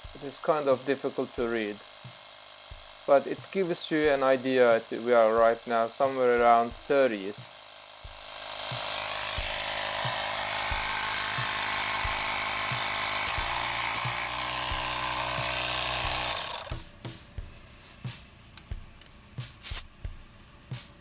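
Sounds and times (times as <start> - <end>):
portable tire inflator running: 0.0 - 21.0.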